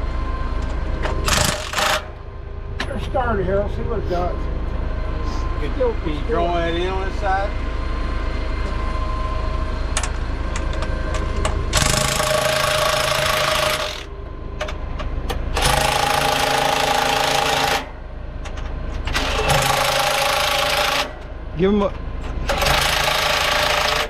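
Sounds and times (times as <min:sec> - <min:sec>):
low engine rumble: 0:02.0 - 0:11.8, 0:14.0 - 0:15.6
impact wrench hammering: 0:11.4 - 0:14.8.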